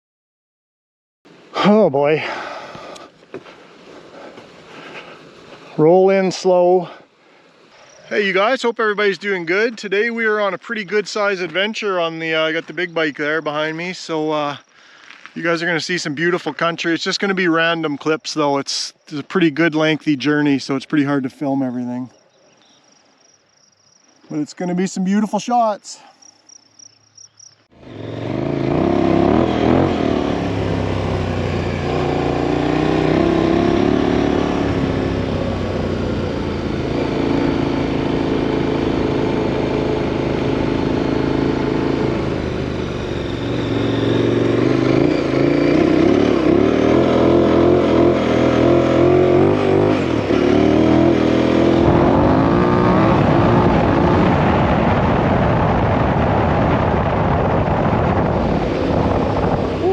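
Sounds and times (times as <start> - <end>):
motorcycle engine revving: 27.8 - 59.9.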